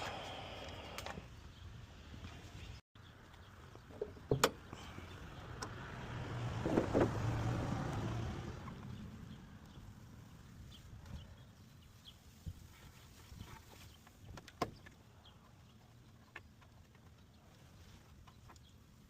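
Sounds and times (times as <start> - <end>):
vehicle passing: 5.2 - 10.2.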